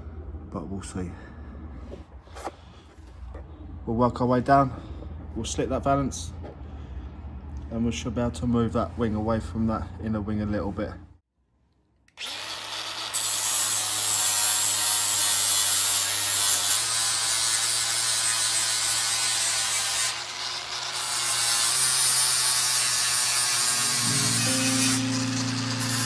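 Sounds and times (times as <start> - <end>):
angle grinder cutting steel: 12.2 - 26.0.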